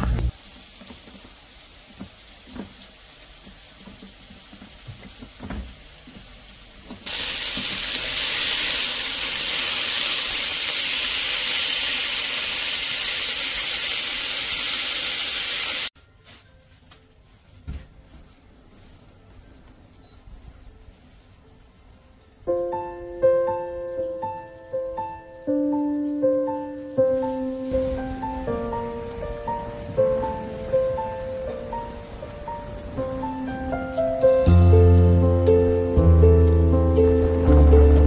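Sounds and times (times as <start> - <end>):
meat and onions sizzling in pan: 0.1 - 15.9, 27.6 - 31.2.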